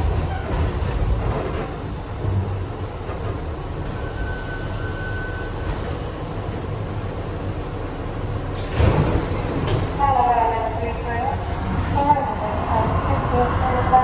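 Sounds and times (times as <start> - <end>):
subway train wheels rumbling: 0.0 - 14.0.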